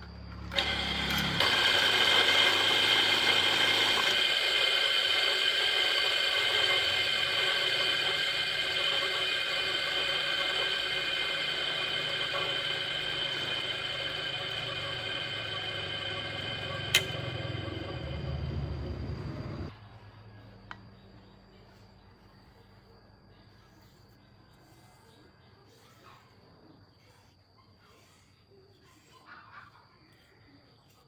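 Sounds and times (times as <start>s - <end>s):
electric motor whining: 0.0s - 19.7s
sharp click: 16.9s - 17.3s.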